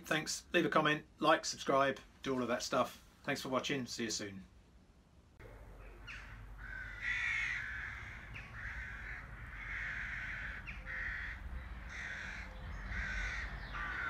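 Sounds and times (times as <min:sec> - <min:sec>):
bird cawing: 0:05.7 - 0:14.0.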